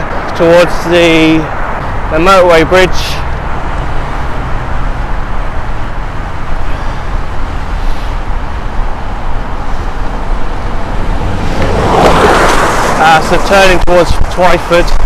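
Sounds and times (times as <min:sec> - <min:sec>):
road traffic: 0:00.0 - 0:15.0
wind rumbling on microphone: 0:00.0 - 0:15.0.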